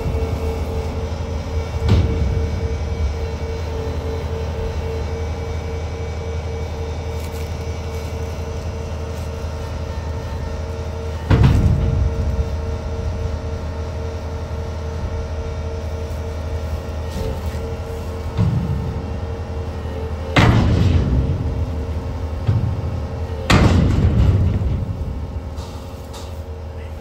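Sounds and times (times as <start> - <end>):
constant whine: 0.0 - 27.0
diesel engine running: 0.0 - 27.0
heavy bang against door: 23.5 - 25.2.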